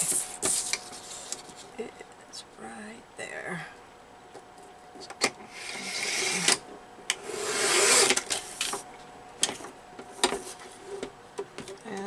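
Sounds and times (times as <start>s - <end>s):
trimmer blade scraping paper: 5.5s - 6.6s, 7.2s - 8.8s.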